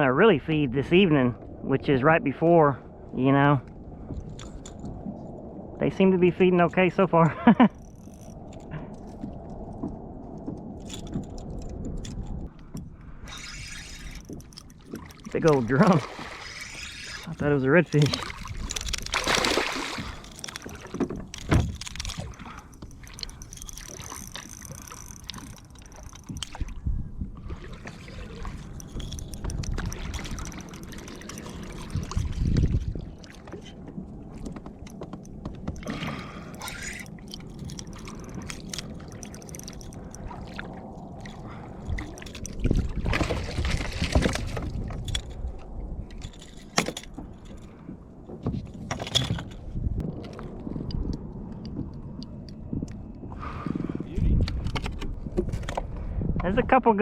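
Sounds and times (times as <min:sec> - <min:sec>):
water splashing against kayak: 0:07.7 - 0:51.9
gear knocking and rattling: 0:16.8 - 0:26.7, 0:28.6 - 0:33.7, 0:34.4 - 0:40.3.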